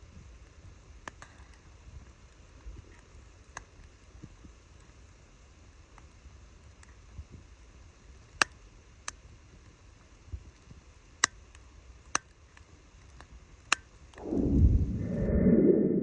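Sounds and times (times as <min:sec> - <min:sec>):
loud low rushing noise: 0:14.2 - 0:16.0.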